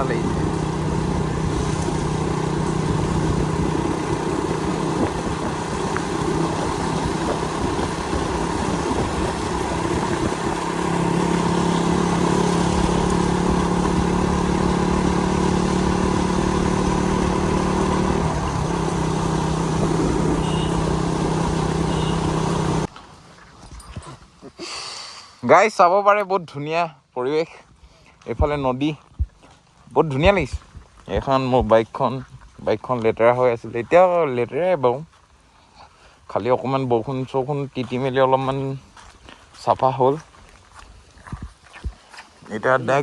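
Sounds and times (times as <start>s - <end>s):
motorcycle engine running: 0.0s - 22.9s
wind rushing noise: 0.0s - 22.9s.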